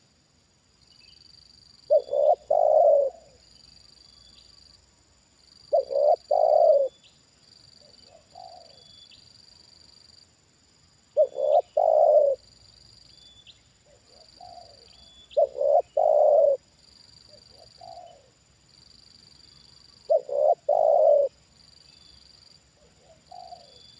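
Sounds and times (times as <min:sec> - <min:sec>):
doves cooing: 0:01.9 - 0:03.4, 0:05.7 - 0:07.0, 0:07.8 - 0:08.8, 0:11.2 - 0:12.4, 0:13.9 - 0:16.6, 0:17.3 - 0:18.3, 0:20.1 - 0:21.4, 0:22.8 - 0:23.9.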